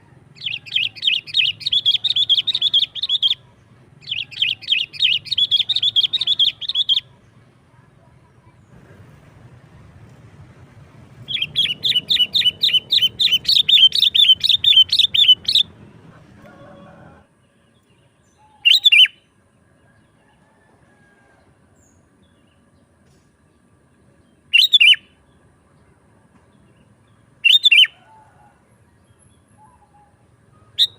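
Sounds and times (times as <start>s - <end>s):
bird chirping rapidly: 0.4s - 3.4s, 4.0s - 7.1s, 11.2s - 15.8s, 18.6s - 19.2s, 24.5s - 25.1s, 27.4s - 28.0s, 30.6s - 30.9s.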